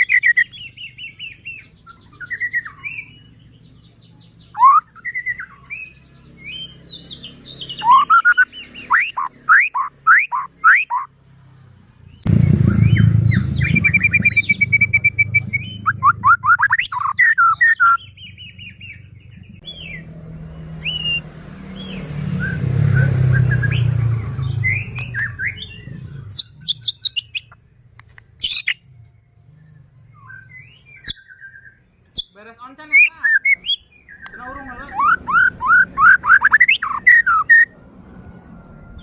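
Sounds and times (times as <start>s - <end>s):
bird singing: 0.0s - 11.2s, 12.0s - 39.0s
low rumble: 12.1s - 17.1s.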